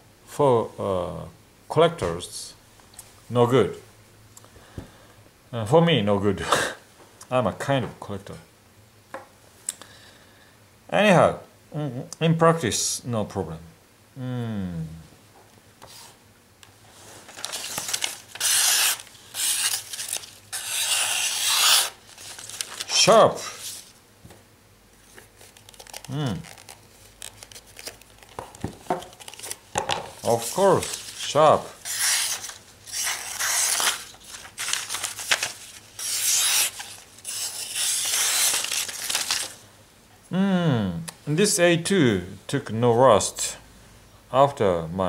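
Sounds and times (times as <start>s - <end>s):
knife blade rasping: 20.5s - 22.0s.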